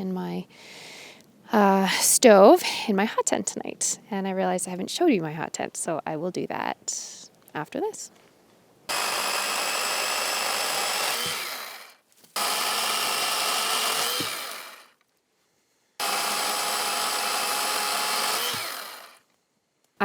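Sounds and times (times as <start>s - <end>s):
electric saw motor whining: 8.9s - 15.0s, 16.0s - 19.2s.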